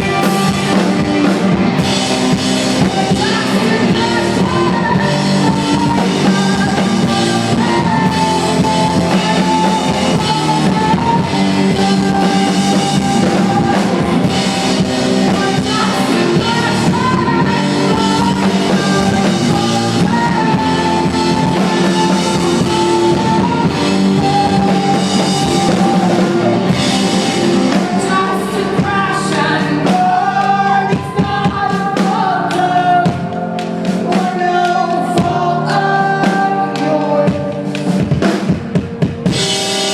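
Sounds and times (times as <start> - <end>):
drum kit: 0.0 - 39.9
guitars: 0.0 - 39.9
person singing: 0.0 - 39.9.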